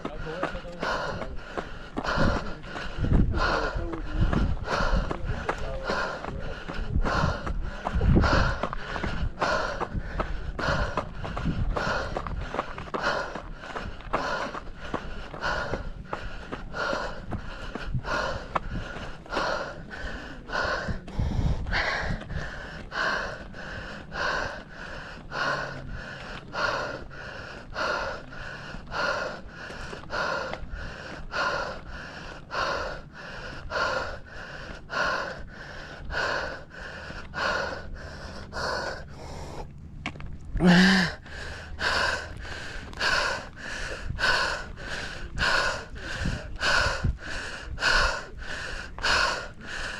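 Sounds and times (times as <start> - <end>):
runner panting heavily: 0.0 - 39.8, 40.6 - 49.9
voiced gasp: 40.6 - 49.9.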